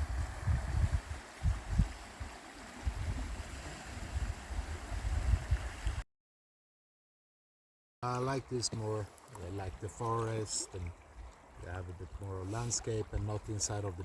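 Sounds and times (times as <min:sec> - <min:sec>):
wind buffeting microphone: 0:00.0 - 0:06.0.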